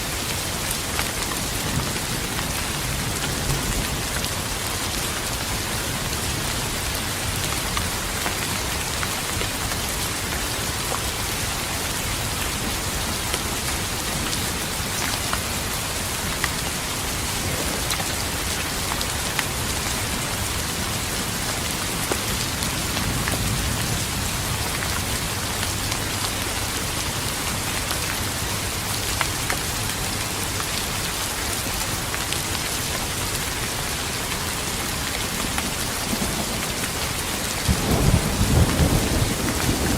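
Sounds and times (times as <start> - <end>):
rain pattering: 0.0 - 39.9
distant thunder rumble: 37.6 - 39.9.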